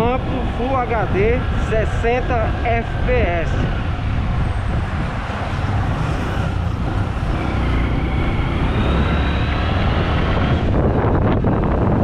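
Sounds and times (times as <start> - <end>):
road rumble: 0.0 - 12.0
wind buffeting microphone: 0.0 - 12.0
motorcycle engine accelerating: 3.8 - 12.0.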